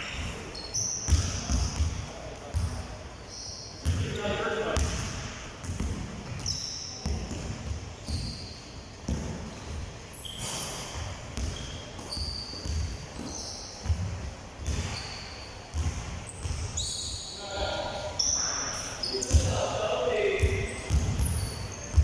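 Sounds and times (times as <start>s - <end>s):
basketballs bouncing on gym floor: 0.0s - 3.0s, 3.8s - 17.2s, 19.2s - 22.0s
sneaker squeaks: 0.0s - 22.0s.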